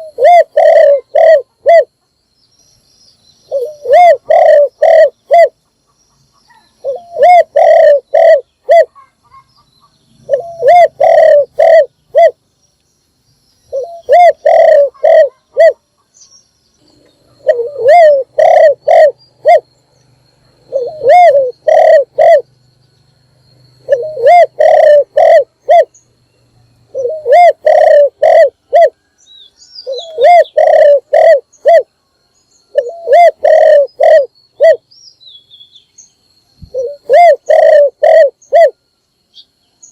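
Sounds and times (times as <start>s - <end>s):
dove cooing: 0.0s - 1.9s, 3.5s - 5.6s, 6.5s - 9.5s, 10.2s - 12.4s, 13.7s - 16.0s, 17.2s - 19.7s, 20.6s - 22.5s, 23.8s - 25.9s, 26.9s - 29.1s, 29.8s - 31.9s, 32.7s - 34.8s, 36.6s - 38.8s.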